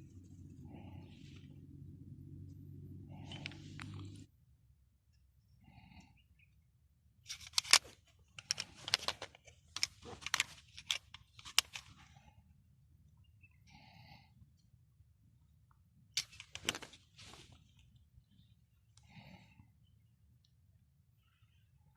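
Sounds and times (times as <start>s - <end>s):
pistol metal clicks and scrapes: 7.2s - 12.1s, 16.2s - 17.5s.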